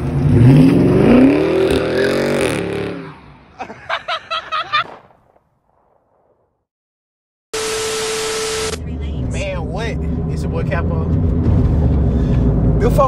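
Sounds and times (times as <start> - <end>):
car engine accelerating away: 0.0 - 3.2
quick electronic blips: 7.6 - 8.9.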